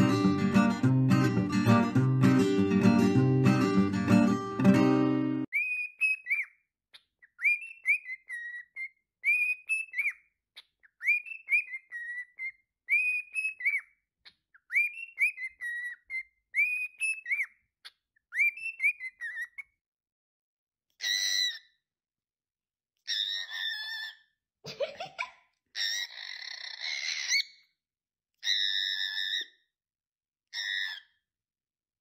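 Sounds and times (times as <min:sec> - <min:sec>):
acoustic guitar music: 0:00.0 - 0:05.5
cockatiel whistling a tune: 0:05.5 - 0:06.6, 0:07.2 - 0:14.0, 0:14.6 - 0:17.6, 0:18.3 - 0:19.7.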